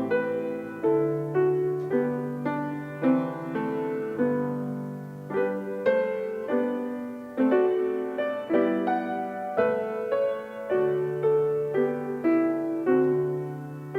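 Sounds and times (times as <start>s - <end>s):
slow piano piece: 0.0s - 13.9s.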